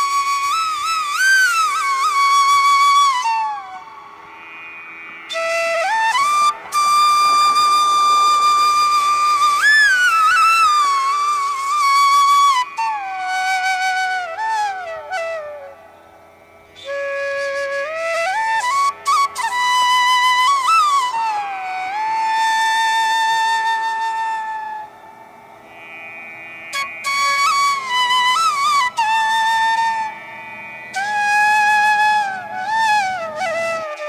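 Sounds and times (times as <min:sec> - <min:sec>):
slow flute melody: 0:00.0 - 0:04.7, 0:05.3 - 0:25.3, 0:26.7 - 0:34.0
faint steady drone: 0:00.0 - 0:34.0.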